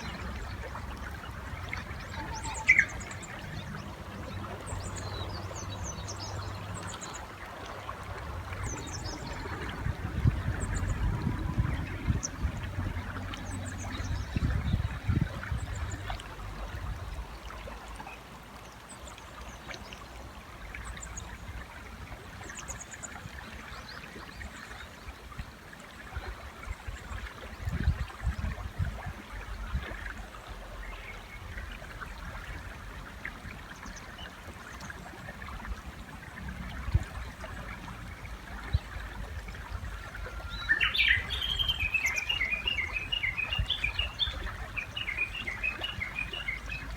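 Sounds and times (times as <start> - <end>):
river water running: 0.0 - 46.9
faint high bird chirps: 2.1 - 3.1.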